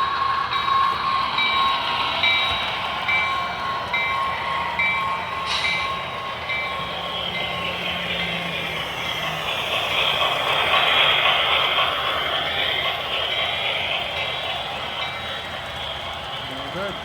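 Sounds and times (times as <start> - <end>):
short hiss: 5.5 - 5.8.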